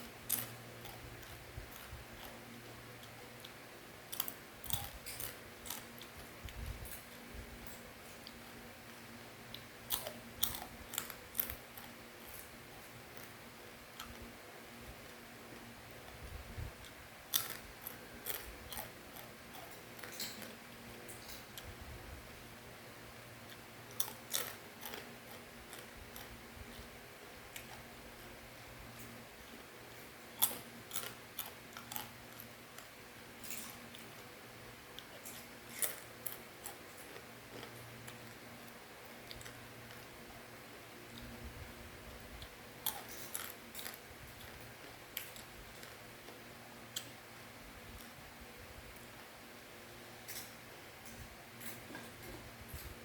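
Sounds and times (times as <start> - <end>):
crunchy snack crunching: 0.0 - 8.4, 9.5 - 14.2, 16.8 - 21.7, 23.5 - 26.9, 30.0 - 34.3, 34.9 - 40.2, 42.2 - 46.4
low steady hum: 0.0 - 53.0
soft mouth clicks chewing: 39.2 - 40.1.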